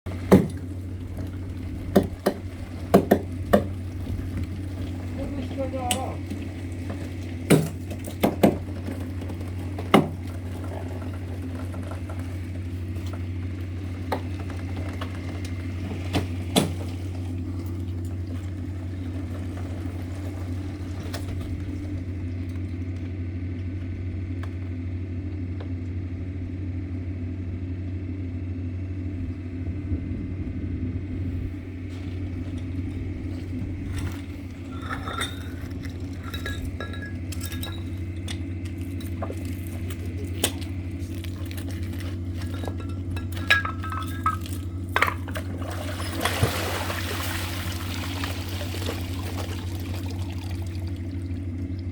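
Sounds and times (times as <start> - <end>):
hydraulic power unit humming: 0.0 - 51.9
rock cracking: 31.9 - 50.1.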